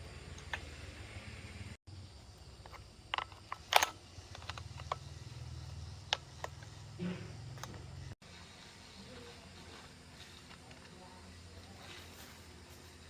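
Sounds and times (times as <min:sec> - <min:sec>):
tools clicking and tapping: 0:02.5 - 0:08.0.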